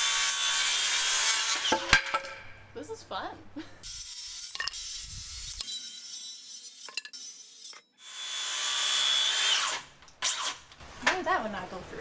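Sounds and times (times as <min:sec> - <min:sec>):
power saw cutting wood: 0:00.0 - 0:01.9, 0:03.9 - 0:10.6.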